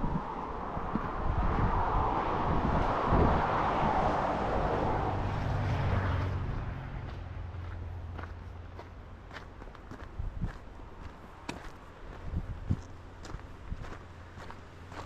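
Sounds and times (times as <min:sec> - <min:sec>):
vehicle passing on highway: 0:00.0 - 0:15.0.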